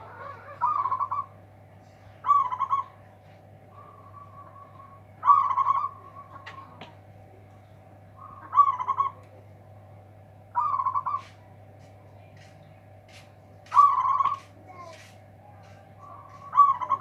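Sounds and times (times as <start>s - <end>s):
dove cooing: 0.0s - 1.5s, 2.2s - 3.0s, 3.7s - 7.4s, 8.2s - 9.2s, 10.6s - 11.3s, 13.7s - 15.1s, 16.0s - 17.0s
faint steady hum: 0.0s - 17.0s.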